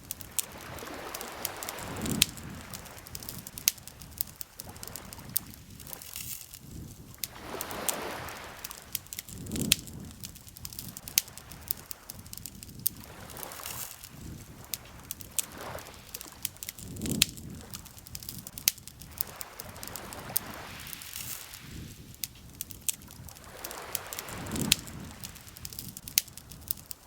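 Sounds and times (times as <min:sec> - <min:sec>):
campfire crackling and popping: 0:00.0 - 0:27.0
water lapping at shore: 0:00.0 - 0:27.0.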